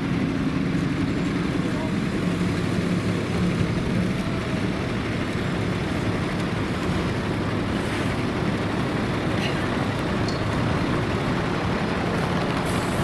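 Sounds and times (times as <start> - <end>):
bus engine running: 0.0 - 13.0
road noise: 0.0 - 13.0.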